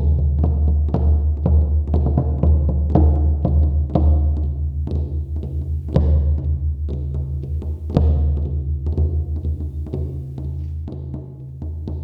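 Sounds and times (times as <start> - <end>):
frame drums beaten in trance rhythm: 0.0 - 12.0.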